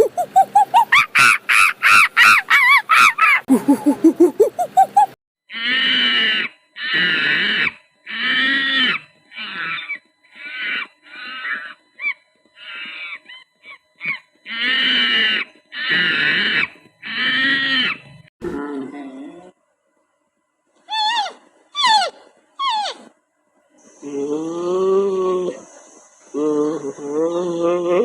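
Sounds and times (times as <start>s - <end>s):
animal giving harsh calls: 0.0s - 18.2s, 20.9s - 23.1s.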